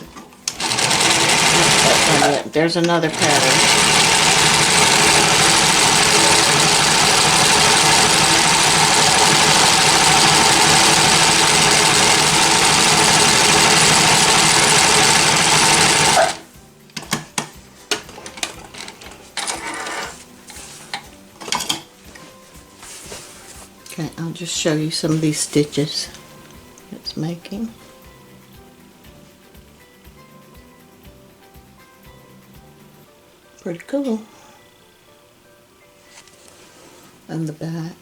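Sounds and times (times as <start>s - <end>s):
sewing machine stitching: 0.1s - 16.5s, 17.9s - 20.2s.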